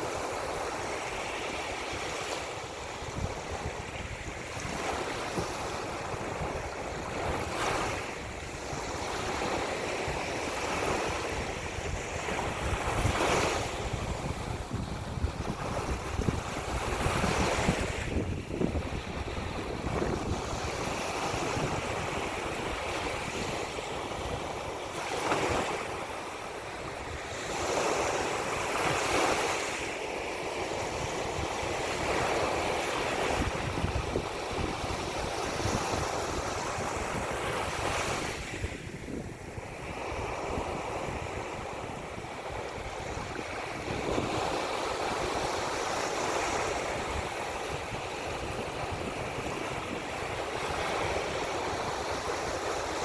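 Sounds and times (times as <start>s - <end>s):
ocean surf washing ashore: 0.0s - 53.0s
wind buffeting microphone: 1.8s - 29.6s, 30.6s - 53.0s.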